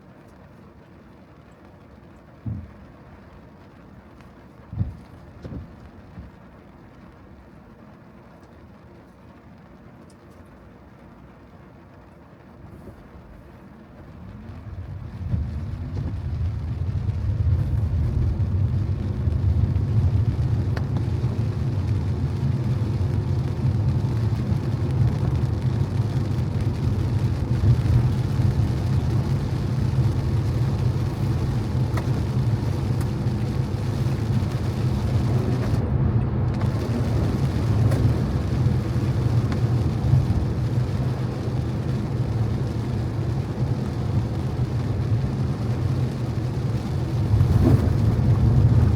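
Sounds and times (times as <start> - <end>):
car engine and road rumble: 0.0 - 48.9
tyre hiss on wet road: 15.3 - 48.9.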